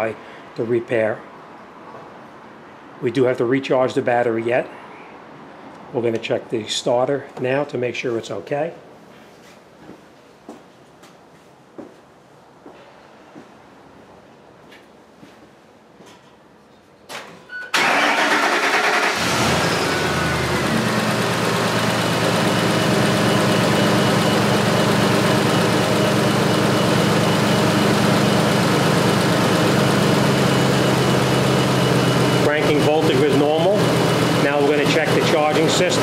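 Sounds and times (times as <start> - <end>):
pickup engine starting and idling: 17.7 - 36.0.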